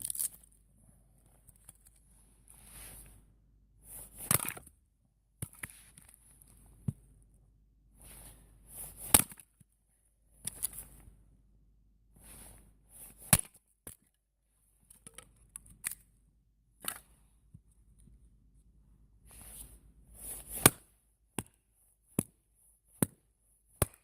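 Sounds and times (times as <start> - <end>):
sharp cracks and knocks: 9.1 - 9.5, 23.8 - 24.0.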